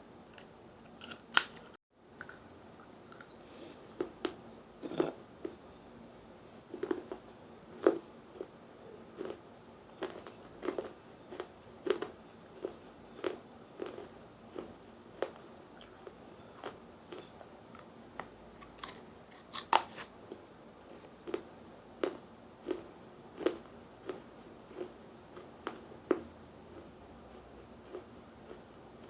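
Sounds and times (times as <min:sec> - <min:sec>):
person crunching baked clay: 0:00.4 - 0:01.8, 0:14.6 - 0:20.1.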